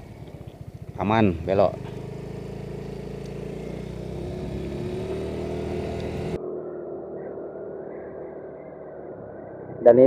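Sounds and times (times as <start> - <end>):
motorcycle engine running: 0.0 - 6.4
wind and road noise: 0.0 - 6.4.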